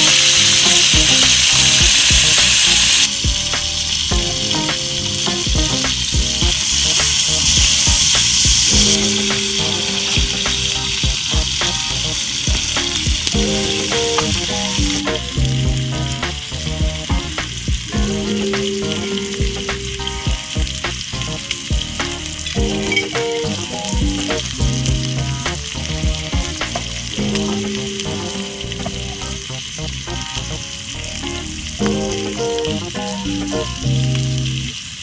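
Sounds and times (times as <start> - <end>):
food sizzling in a pan: 0.0 - 35.0
wood fire crackling: 0.0 - 35.0.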